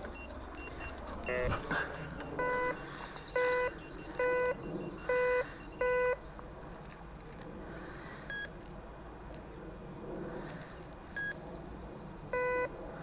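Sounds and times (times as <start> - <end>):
metal detector low beeps: 0.0 - 6.2, 8.3 - 8.5, 11.2 - 11.4, 12.3 - 12.7
metal detector high beep: 0.1 - 6.2.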